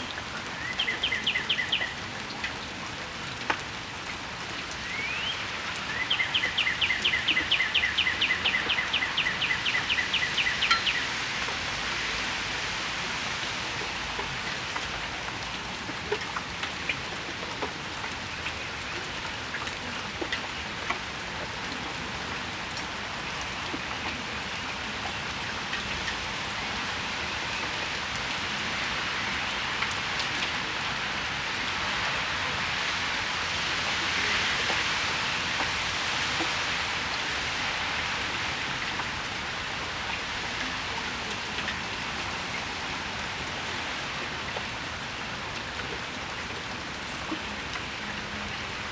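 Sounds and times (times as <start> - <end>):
rain falling on patio: 0.0 - 48.9
drips ticking: 4.8 - 11.6.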